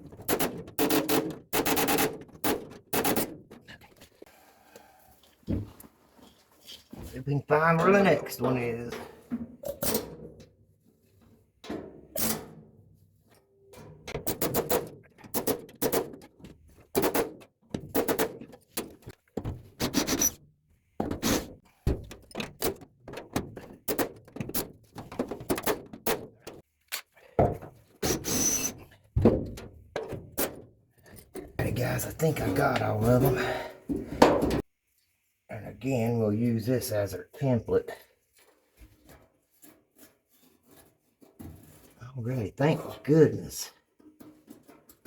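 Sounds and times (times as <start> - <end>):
knocks and thunks on sheet metal: 14.0 - 20.3, 21.0 - 26.6, 29.2 - 30.7, 34.0 - 34.6.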